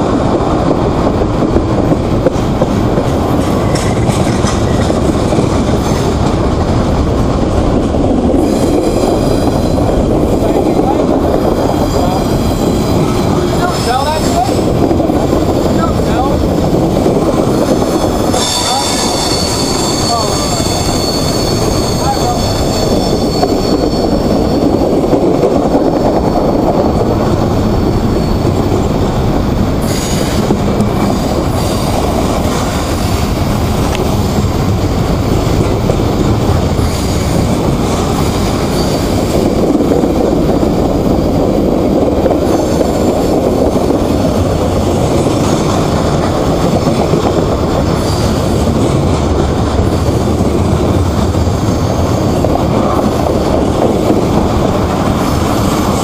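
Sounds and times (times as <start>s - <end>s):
train wheels rumbling on rail: 0.0s - 56.0s
high-pitched metallic squeal: 17.8s - 24.9s, 27.8s - 28.7s.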